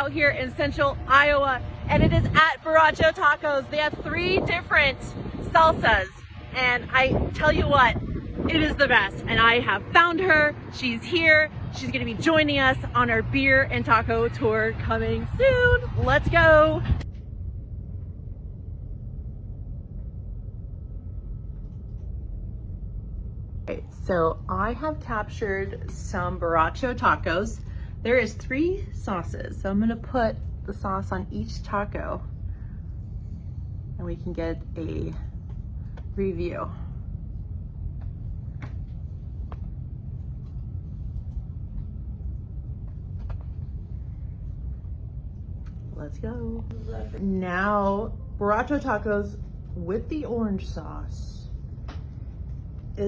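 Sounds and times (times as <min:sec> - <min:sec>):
faint high hum: 0:00.0 - 0:53.0
steady low rumble: 0:00.0 - 0:53.0.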